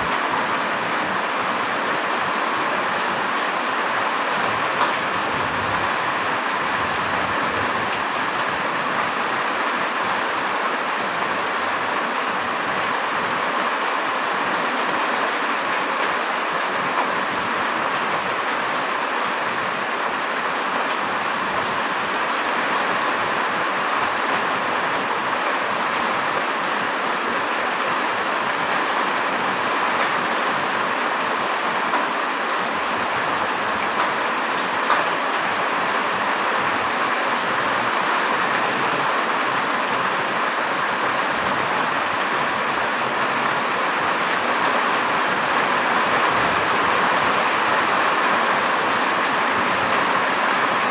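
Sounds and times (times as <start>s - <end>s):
faint ticks of raindrops: 0.0s - 0.3s, 4.4s - 5.0s, 13.2s - 13.6s, 16.9s - 17.3s, 19.2s - 19.6s, 27.8s - 30.4s, 31.1s - 40.6s
heavy rain hissing: 0.0s - 50.9s.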